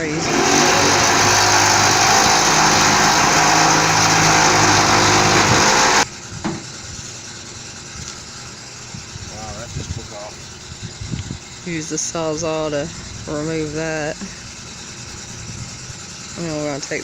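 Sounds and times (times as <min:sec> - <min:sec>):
reciprocating saw cutting metal: 0:00.0 - 0:06.1.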